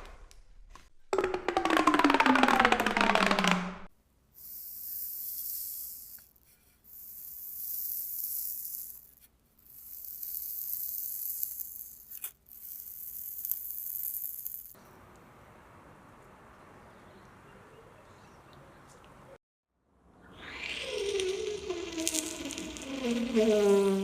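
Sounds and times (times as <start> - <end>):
high-pitched hiss bursts: 4.4 - 14.8, 20.4 - 24.0.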